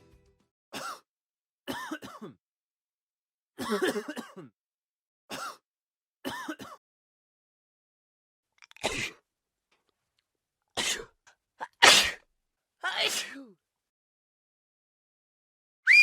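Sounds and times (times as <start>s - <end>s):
person coughing: 1.7s - 2.4s, 3.6s - 4.6s, 6.3s - 6.8s, 8.8s - 9.2s, 11.6s - 12.2s, 12.9s - 13.5s.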